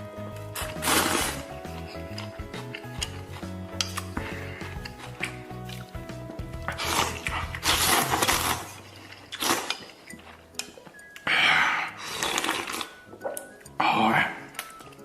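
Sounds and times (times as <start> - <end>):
person slurping noodles: 0.6 - 1.5, 6.7 - 10.1, 11.2 - 13.0.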